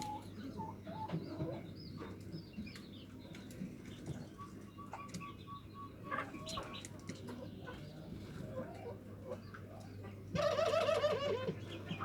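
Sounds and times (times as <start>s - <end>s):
small birds chirping: 0.0s - 10.3s
dove cooing: 10.4s - 11.6s.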